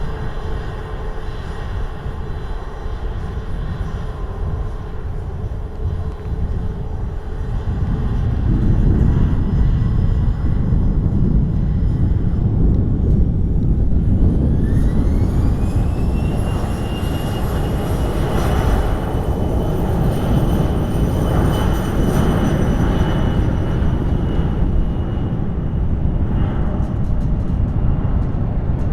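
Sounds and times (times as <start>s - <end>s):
jet engines spooling up: 12.6s - 28.9s.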